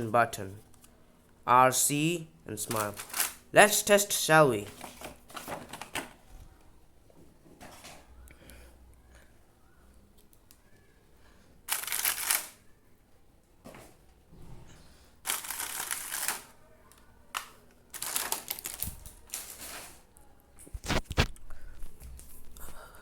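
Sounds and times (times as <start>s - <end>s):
packaging rustling and clicking: 4.7s - 6.2s, 17.4s - 20.0s.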